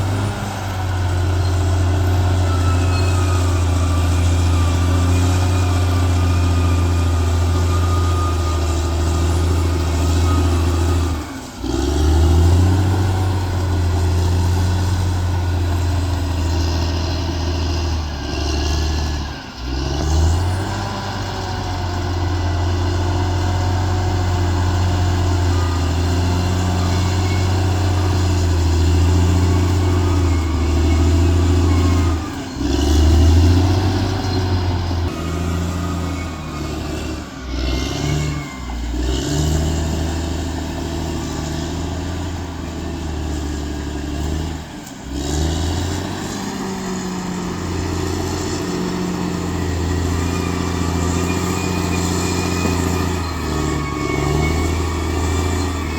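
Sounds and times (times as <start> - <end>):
bulldozer diesel engine: 0.0 - 55.9.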